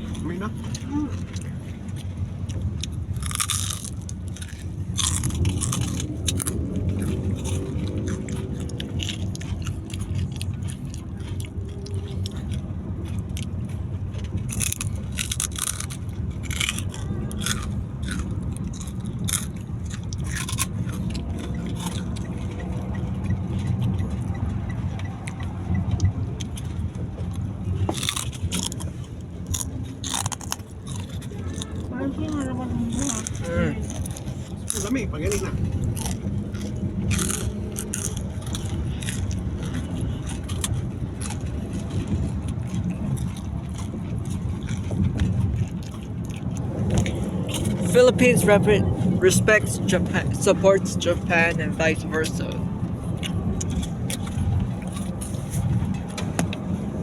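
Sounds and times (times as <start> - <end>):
crunching and chewing pork rinds: 0.0 - 57.0
car cabin rumble: 15.9 - 30.0, 51.9 - 57.0.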